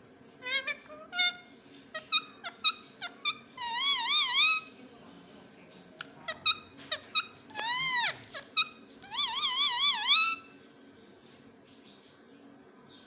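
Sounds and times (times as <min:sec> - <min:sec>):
parrot calling: 0:00.4 - 0:04.7, 0:06.2 - 0:10.6.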